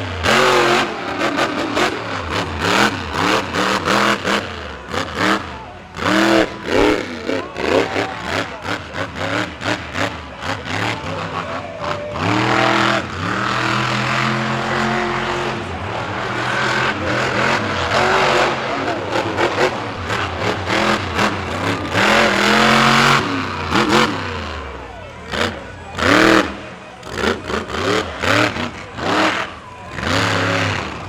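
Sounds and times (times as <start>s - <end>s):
truck engine revving: 0.0s - 31.0s.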